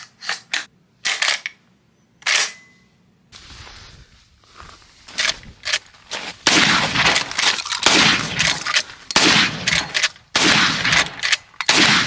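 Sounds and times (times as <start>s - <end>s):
faint gunshots: 6.4s - 12.0s
loud gunshots with echo: 6.4s - 12.0s.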